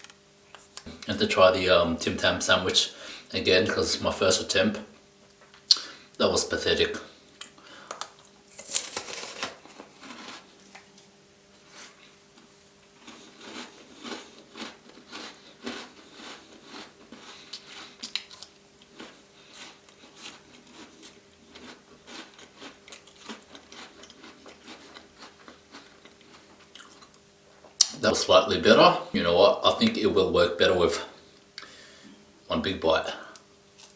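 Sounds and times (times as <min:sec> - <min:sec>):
crunching and smacking chewing: 0:07.4 - 0:11.0, 0:12.3 - 0:28.0.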